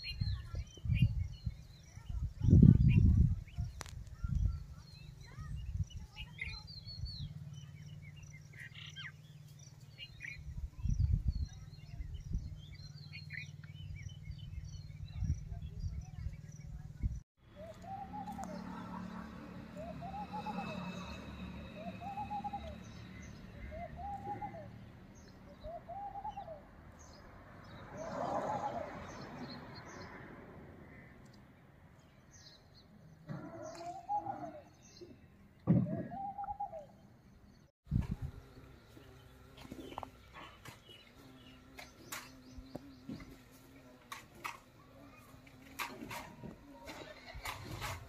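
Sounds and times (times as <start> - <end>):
birds chirping: 0.0 - 48.0
faint high bird chirps: 32.2 - 43.5.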